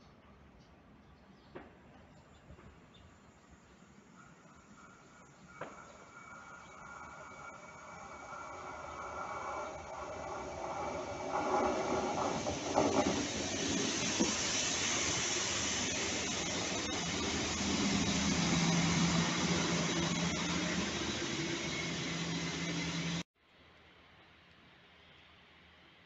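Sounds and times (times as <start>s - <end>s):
train whine: 3.6s - 23.3s
rushing hiss of train wheels: 3.9s - 23.2s
low engine drone: 4.2s - 23.3s.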